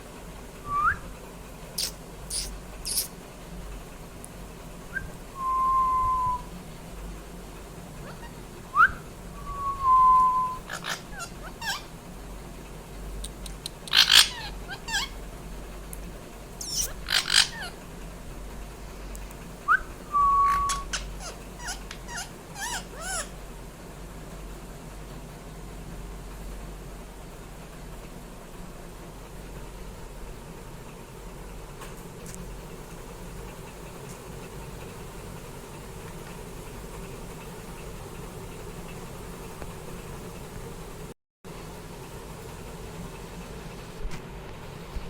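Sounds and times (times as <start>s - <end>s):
parrot whistling: 0.7s - 1.1s, 1.8s - 3.1s, 4.9s - 6.5s, 8.0s - 11.9s, 13.9s - 15.2s, 16.6s - 17.8s, 19.7s - 23.3s
parrot squawking: 1.8s - 3.1s, 8.0s - 8.4s, 10.5s - 11.9s, 13.4s - 15.2s, 16.6s - 17.8s, 20.4s - 23.4s
parrot chirps: 1.8s - 3.2s, 8.0s - 9.0s, 10.4s - 11.9s, 13.2s - 15.2s, 16.6s - 17.8s, 19.7s - 23.4s.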